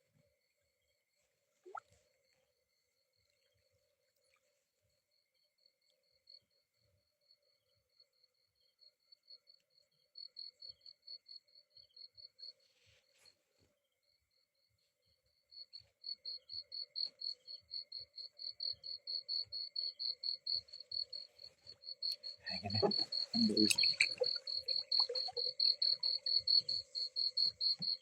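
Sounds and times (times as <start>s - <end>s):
insects chirping: 14.0s - 28.0s
low insect trill: 15.4s - 28.0s.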